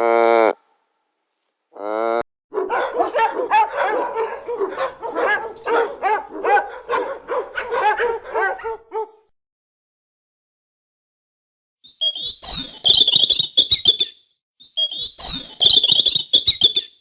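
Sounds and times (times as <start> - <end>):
dog barking: 2.5 - 9.3.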